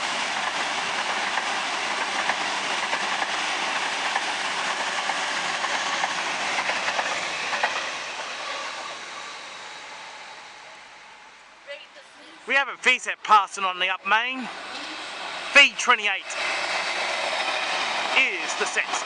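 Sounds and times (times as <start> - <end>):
electric train passing: 0.0 - 19.0
train wheel clicks: 0.4 - 8.8.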